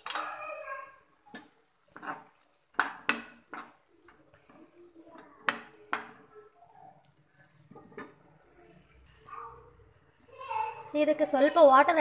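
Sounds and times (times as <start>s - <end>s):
spoon knocking against cooking pan: 1.3s - 3.8s, 5.4s - 6.2s.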